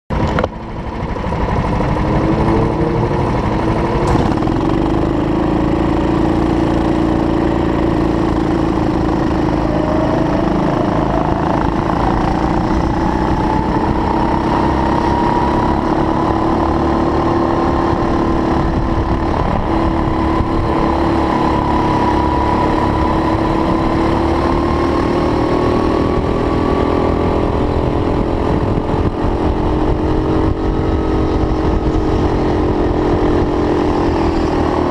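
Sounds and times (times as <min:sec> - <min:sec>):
go-kart engines running: 0:00.1 - 0:34.9.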